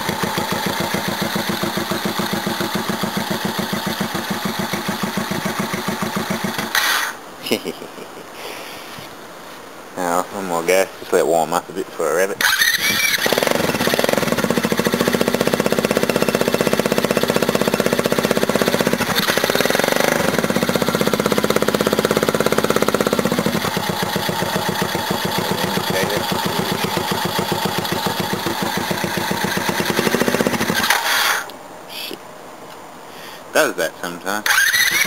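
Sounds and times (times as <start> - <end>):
small engine idling and stalling: 0.0 - 7.2, 12.4 - 31.5, 34.4 - 35.0.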